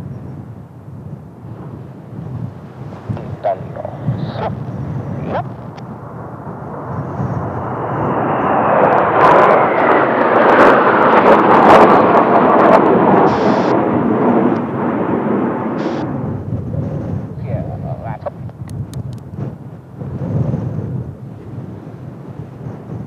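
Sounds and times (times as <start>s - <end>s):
jet aircraft flying past: 1.5s - 18.5s.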